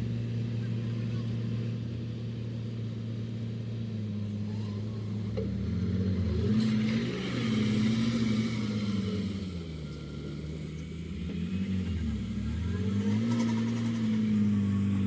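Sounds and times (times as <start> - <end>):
heavy diesel engine revving: 4.3 - 15.0.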